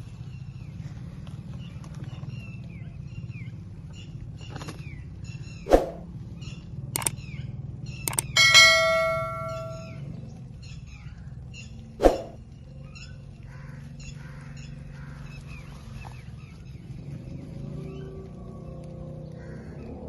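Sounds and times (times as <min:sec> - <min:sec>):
ringing tone: 0:08.1 - 0:10.0.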